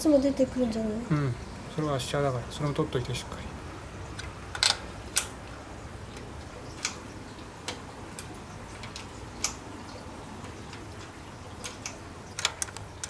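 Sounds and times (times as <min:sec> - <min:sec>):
tools clicking and tapping: 0:04.2 - 0:05.4, 0:10.7 - 0:12.9.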